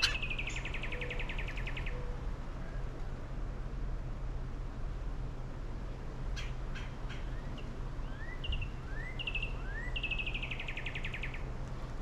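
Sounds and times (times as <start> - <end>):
songbird calling: 0.0 - 2.2, 6.3 - 11.5.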